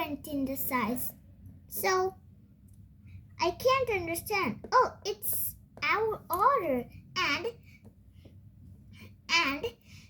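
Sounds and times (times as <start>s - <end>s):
child exclaiming: 9.3s - 9.8s.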